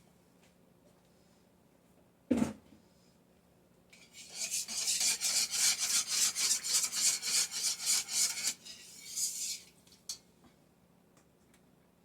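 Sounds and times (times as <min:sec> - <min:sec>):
utensil scraping a pot: 0:04.0 - 0:09.9.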